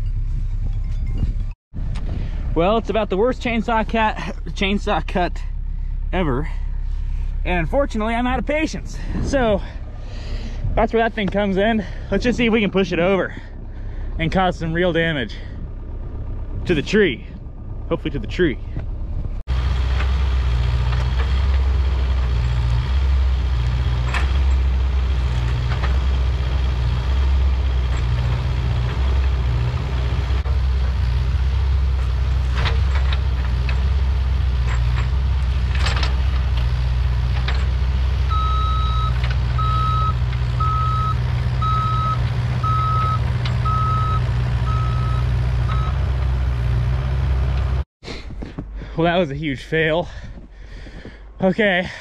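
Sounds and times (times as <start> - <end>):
excavator engine running hard: 1.8 - 47.8
travel alarm beeping: 38.3 - 46.0.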